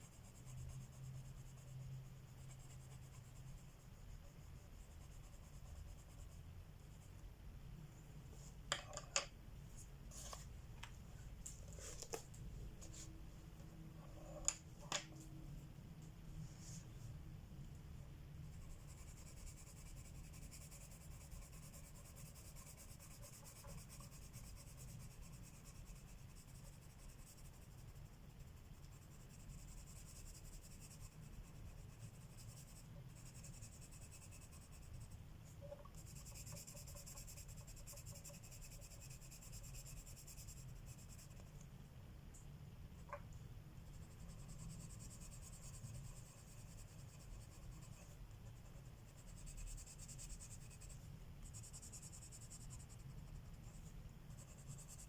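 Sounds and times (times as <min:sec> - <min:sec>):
pencil scratching on paper: 0:00.0 - 0:07.1, 0:18.5 - 0:35.2, 0:35.9 - 0:41.5, 0:43.8 - 0:55.0.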